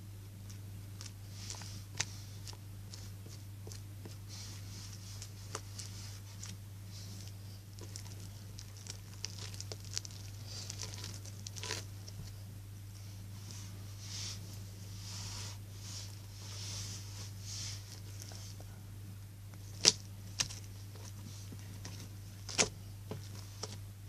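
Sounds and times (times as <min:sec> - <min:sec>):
slime crackling and popping: 0:07.8 - 0:11.9, 0:19.7 - 0:20.7.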